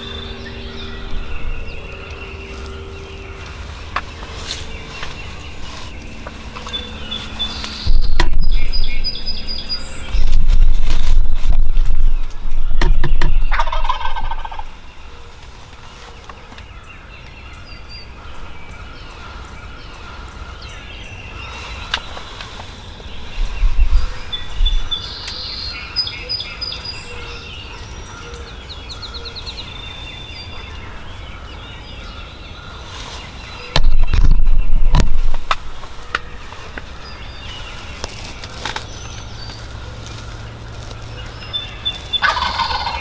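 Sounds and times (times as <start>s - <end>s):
songbirds chirping: 0.0s - 43.0s
turkey gobbling: 13.5s - 14.7s, 41.5s - 43.0s.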